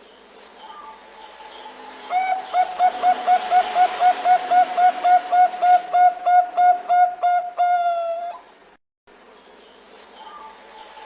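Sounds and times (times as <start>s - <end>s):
dove cooing: 2.1s - 8.5s.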